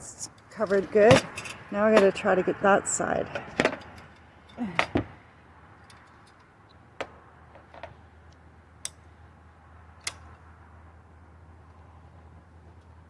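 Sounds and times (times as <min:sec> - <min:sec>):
low steady hum: 0:00.0 - 0:06.5.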